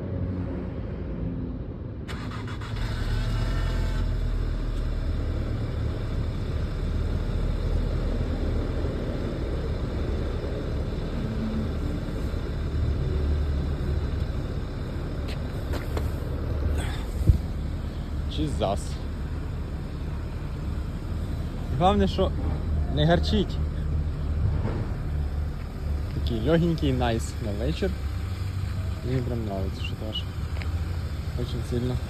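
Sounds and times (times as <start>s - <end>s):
car engine cold start: 2.1s - 5.3s.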